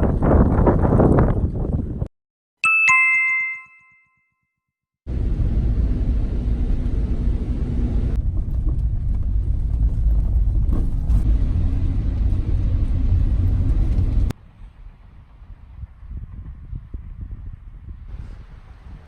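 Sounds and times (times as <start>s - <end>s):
vehicle driving rumble: 5.1s - 19.0s.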